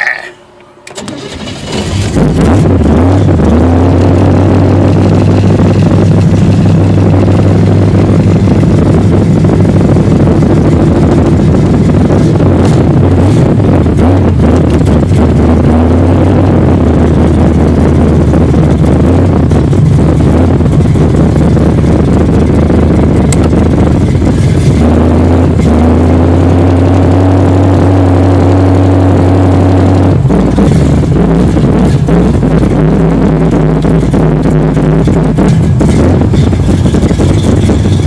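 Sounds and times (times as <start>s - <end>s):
race car engine running: 0.8s - 38.0s.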